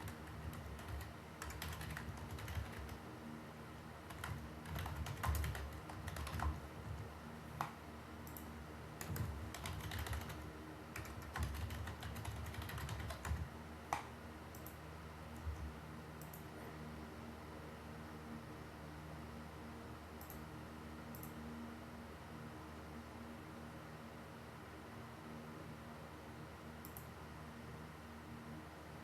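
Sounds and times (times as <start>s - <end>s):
typing on computer keyboard: 0.0s - 3.0s, 4.1s - 14.8s
faint steady hum: 0.0s - 29.0s.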